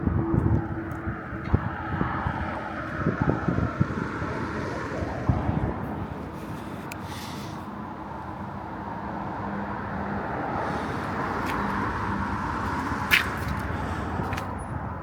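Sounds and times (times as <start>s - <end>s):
road traffic noise: 0.0s - 15.0s
vehicle passing: 8.8s - 15.0s.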